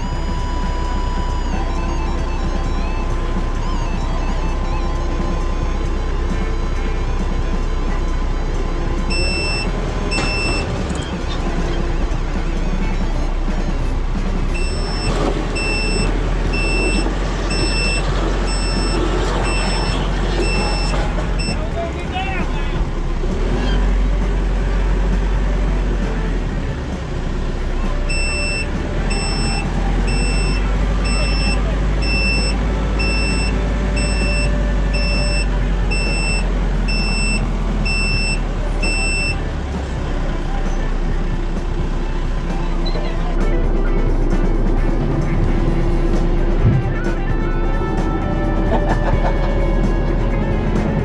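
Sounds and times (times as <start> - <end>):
vehicle backup alarm beeping: 0.0 - 23.8, 26.6 - 41.4
engine running: 0.0 - 51.0.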